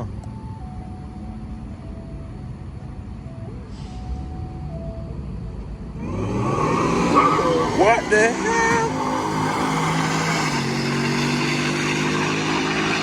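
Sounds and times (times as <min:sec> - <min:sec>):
car approaching: 0:00.0 - 0:13.0
car engines rumbling: 0:00.0 - 0:13.0.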